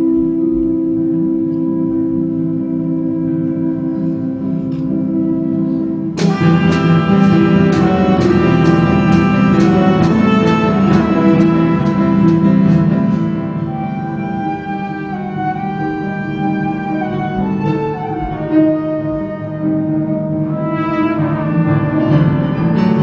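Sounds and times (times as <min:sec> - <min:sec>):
instrumental music: 0:00.0 - 0:23.0
struck or plucked notes: 0:06.2 - 0:14.4.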